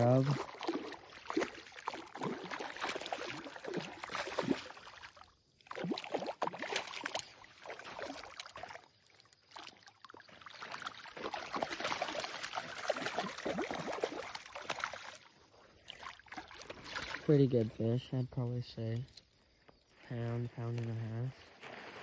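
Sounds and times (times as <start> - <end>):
pond water splashing: 0.0 - 22.0.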